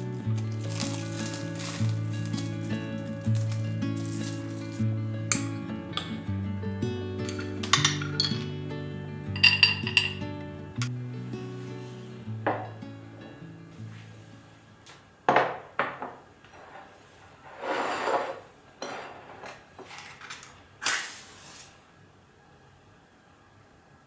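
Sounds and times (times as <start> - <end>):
scraping rustle: 0.4 - 4.8, 16.5 - 20.2, 20.9 - 21.8
dishes and cutlery clinking: 0.4 - 6.3, 7.2 - 8.7, 9.4 - 10.9, 18.0 - 20.6.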